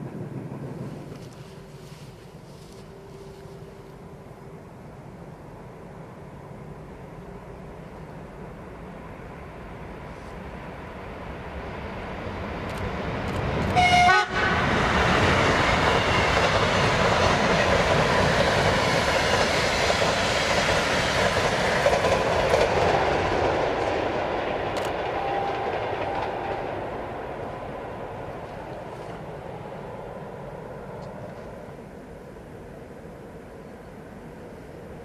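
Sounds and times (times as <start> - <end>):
train wheels rushing on rail: 0.0 - 35.0
train horn blast: 13.7 - 14.8.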